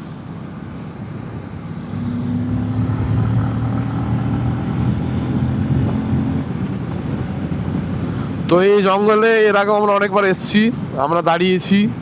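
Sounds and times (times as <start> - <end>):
motorcycle engine hum: 0.0 - 8.6
wind rumbling over microphone: 0.6 - 11.1.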